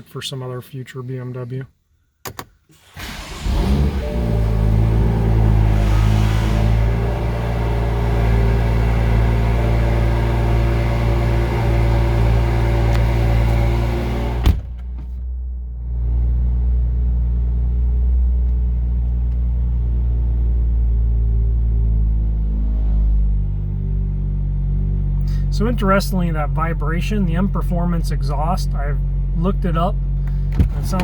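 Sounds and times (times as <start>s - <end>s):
car engine idling: 2.8s - 22.3s, 23.9s - 31.0s
vibrating exhaust buzz: 3.8s - 14.7s.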